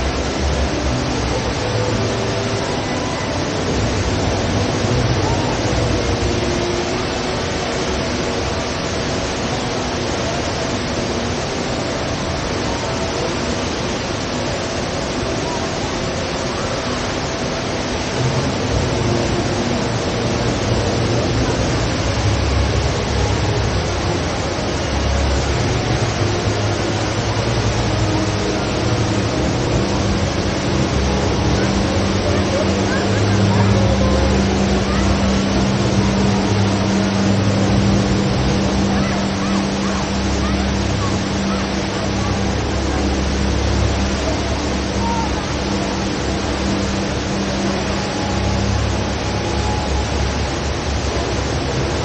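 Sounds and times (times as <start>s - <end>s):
faint crowd chatter: 0.0s - 52.0s
waterfall rushing: 0.0s - 52.0s.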